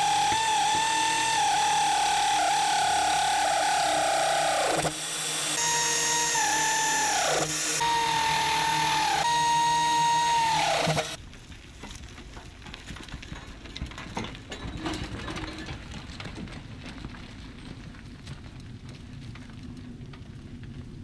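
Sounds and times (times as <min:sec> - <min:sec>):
motor spinning down: 0:00.0 - 0:11.2
power drill whining: 0:00.0 - 0:11.2.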